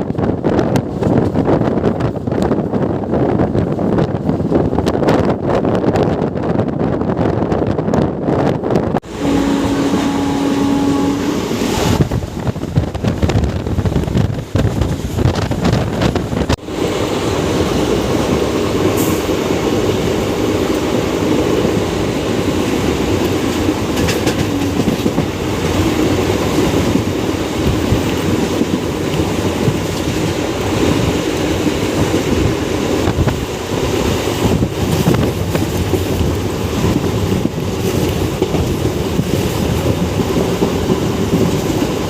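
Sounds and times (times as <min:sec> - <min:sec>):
steady tone: 0:09.0 - 0:12.4
train wheels clattering on rails: 0:11.2 - 0:42.0.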